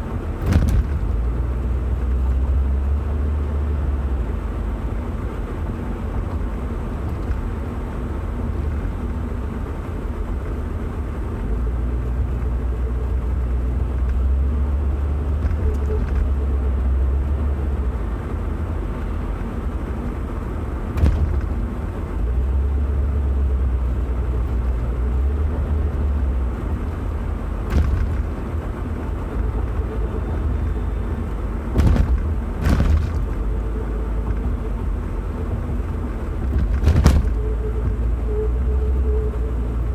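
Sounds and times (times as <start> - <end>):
vehicle rumble: 0.0 - 39.9
sharp knocks: 21.0 - 21.8, 27.7 - 28.4, 31.7 - 33.5, 36.4 - 37.5.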